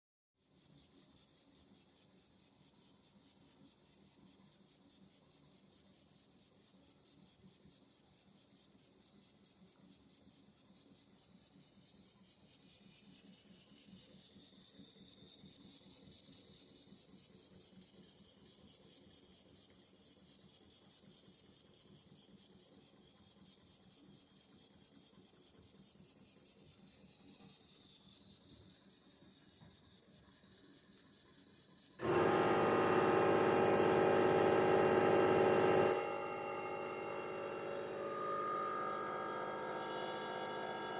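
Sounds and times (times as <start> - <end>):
model steam engine chuffing: 32.0 - 40.9.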